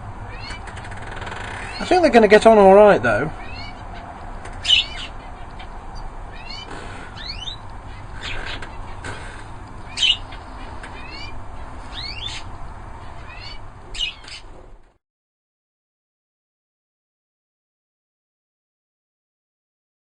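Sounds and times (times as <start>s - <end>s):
canaries chirping: 0.3s - 14.6s.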